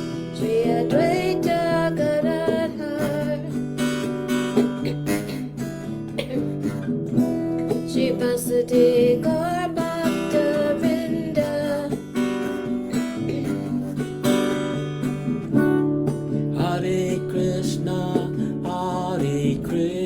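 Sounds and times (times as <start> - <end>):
acoustic guitar strummed: 0.0 - 20.0.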